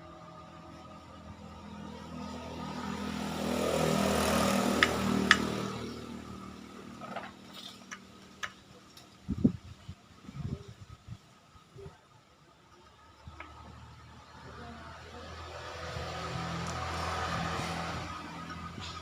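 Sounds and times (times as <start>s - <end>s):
motorcycle engine: 0.0s - 9.0s, 13.3s - 19.0s.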